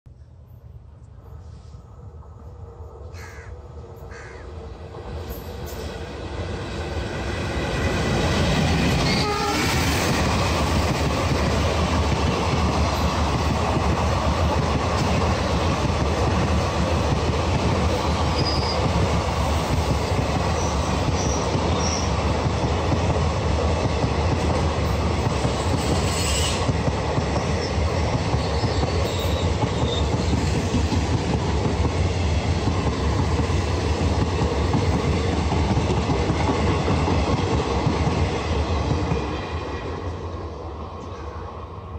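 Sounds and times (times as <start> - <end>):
train rumbling past: 0.1 - 41.9
train horn: 9.0 - 10.0, 26.0 - 26.7.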